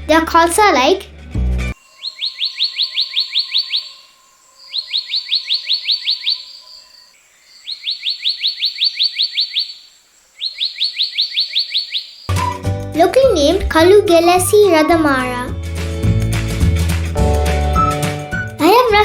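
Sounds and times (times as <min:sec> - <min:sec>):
bird calling in rapid notes: 0:01.8 - 0:12.7.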